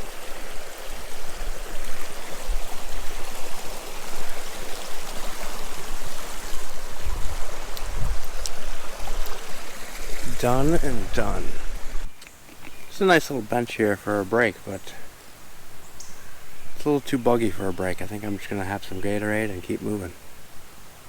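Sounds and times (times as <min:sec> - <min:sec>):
river water rushing: 0:00.0 - 0:12.2.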